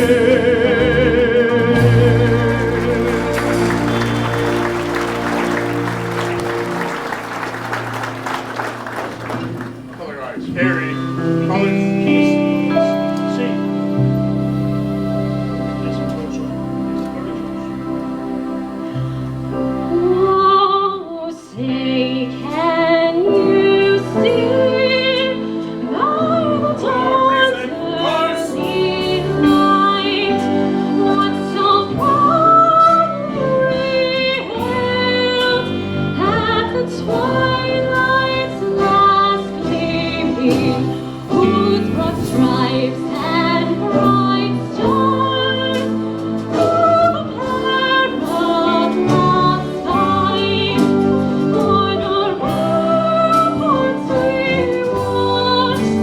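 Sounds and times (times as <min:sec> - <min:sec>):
accompanying notes: 0:00.0 - 0:56.0
anthem singing: 0:00.0 - 0:56.0.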